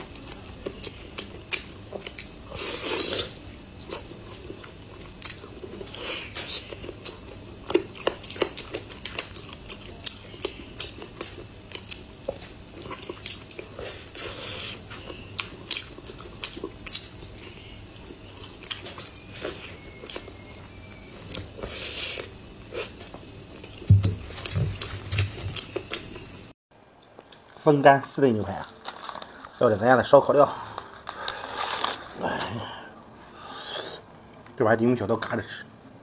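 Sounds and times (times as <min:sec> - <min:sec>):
wet chewing and mouth clicks: 0:03.8 - 0:24.5.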